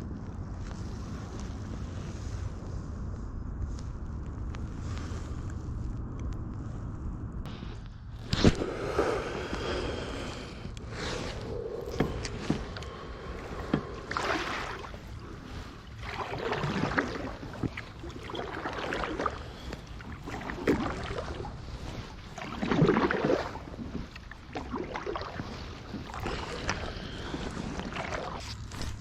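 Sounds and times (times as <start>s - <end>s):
water splashing around kayak: 7.5s - 29.0s.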